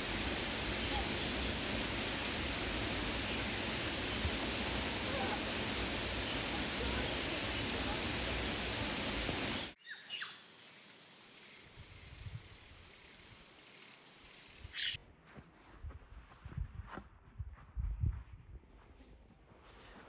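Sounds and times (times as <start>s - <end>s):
waterfall roaring: 0.0s - 9.8s
bird chirps: 9.6s - 10.5s.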